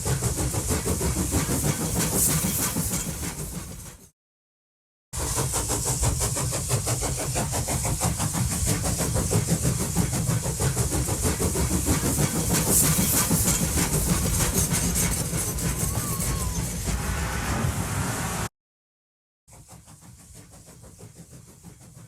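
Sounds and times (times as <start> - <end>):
steam locomotive exhaust beating: 0.0 - 4.1, 5.2 - 18.5, 19.5 - 22.0
low rumble: 16.8 - 18.5.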